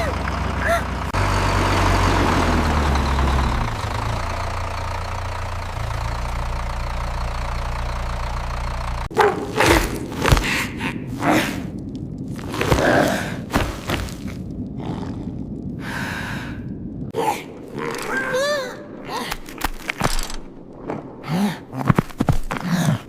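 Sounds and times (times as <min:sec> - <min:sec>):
tractor engine humming: 0:00.0 - 0:12.6.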